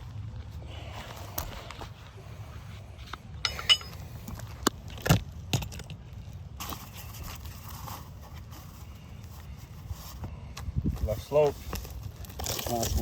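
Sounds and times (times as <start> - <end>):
metallic clinks: 3.4 - 4.0.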